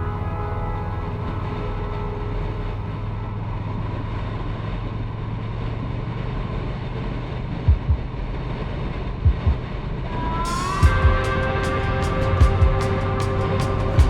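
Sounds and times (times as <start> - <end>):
wind noise on microphone: 6.9 - 14.0
short low thumps: 7.7 - 8.2, 9.2 - 9.7, 10.8 - 14.0
motorcycle engine hum: 10.8 - 14.0.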